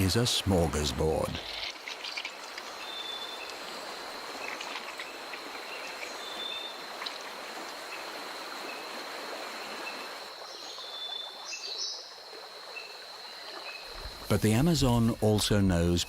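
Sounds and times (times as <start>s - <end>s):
high insect drone: 0.0s - 16.0s
running water: 0.0s - 16.0s.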